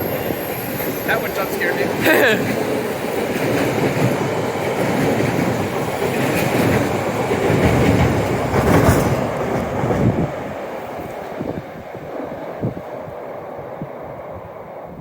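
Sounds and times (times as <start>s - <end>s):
train wheels clattering: 0.0s - 11.3s.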